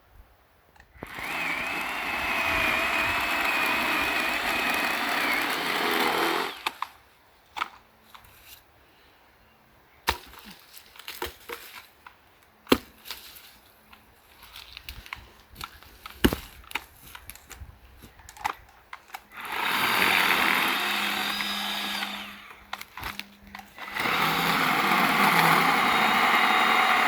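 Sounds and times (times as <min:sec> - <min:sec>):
cordless saw cutting wood: 0:01.0 - 0:06.8, 0:19.3 - 0:27.0.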